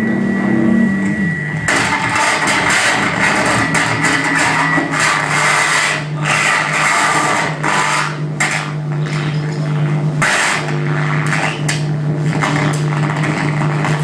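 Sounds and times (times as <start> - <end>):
low drone: 0.0 - 7.5
harsh scraping grinding noise: 0.0 - 14.0.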